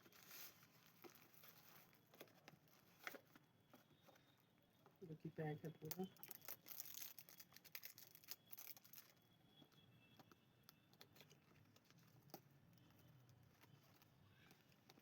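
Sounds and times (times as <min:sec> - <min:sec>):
packaging crinkling and tearing: 0:05.8 - 0:09.2.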